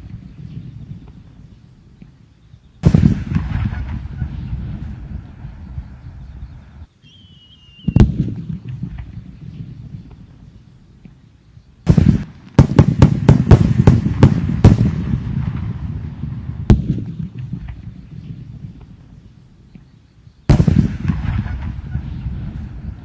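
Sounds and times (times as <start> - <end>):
firework cracks: 2.8 - 5.6, 11.9 - 18.0, 20.5 - 23.0
fireworks bursting: 2.8 - 6.0, 7.7 - 10.3, 11.9 - 19.2, 20.5 - 23.0
low rumble: 2.8 - 6.9, 20.5 - 23.0.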